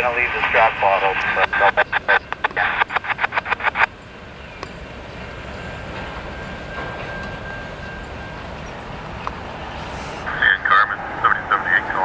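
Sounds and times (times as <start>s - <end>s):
train cars rolling over rails: 3.9s - 12.0s.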